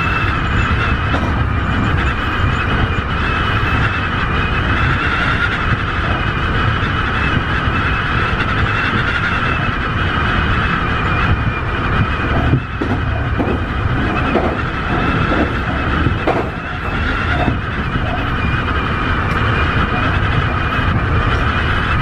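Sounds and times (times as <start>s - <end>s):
electric train running: 0.0s - 22.0s
high whine: 0.0s - 22.0s
wheel knocks: 12.3s - 17.7s.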